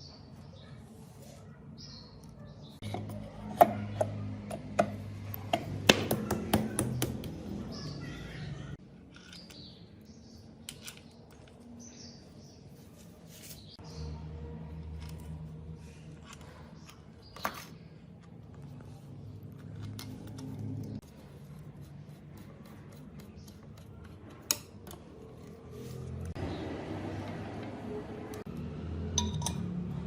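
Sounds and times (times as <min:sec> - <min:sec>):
hand tools clicking and tapping: 0:02.8 - 0:07.5, 0:21.9 - 0:25.3.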